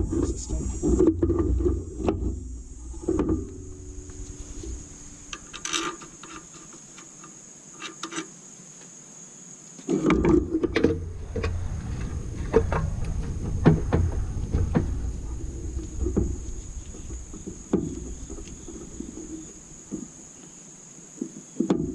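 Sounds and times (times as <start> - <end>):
low rumble: 1.6 - 5.8, 10.4 - 20.2.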